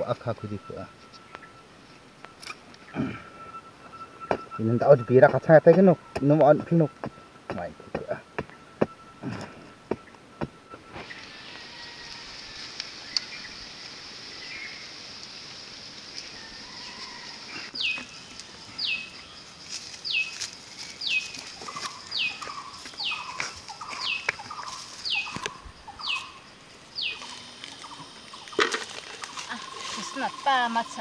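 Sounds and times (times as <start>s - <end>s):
steady high hiss: 6.3s - 31.0s
bird calling with falling notes: 20.0s - 26.4s.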